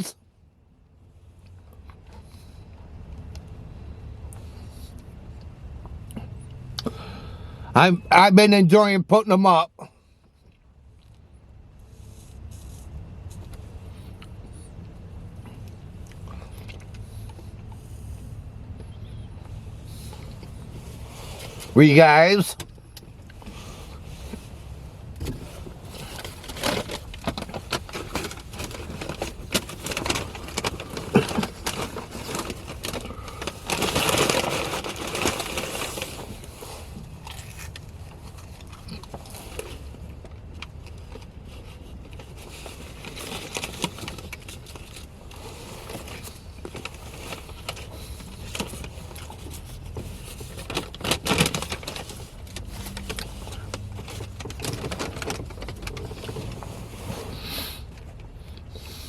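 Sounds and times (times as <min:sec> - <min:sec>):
road rumble in car cabin: 0:00.0 - 0:59.0
clicks and rustles: 0:24.2 - 0:58.9.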